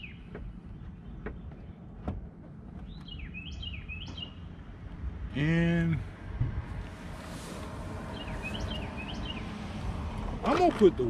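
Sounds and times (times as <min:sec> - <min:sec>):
outdoor background noise: 0:00.0 - 0:11.0
songbird chirping: 0:00.0 - 0:11.0.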